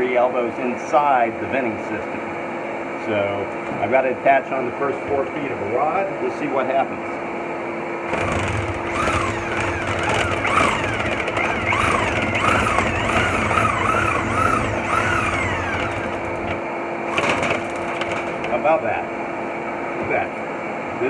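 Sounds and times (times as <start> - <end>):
drill motor whirring: 8.1 - 18.7.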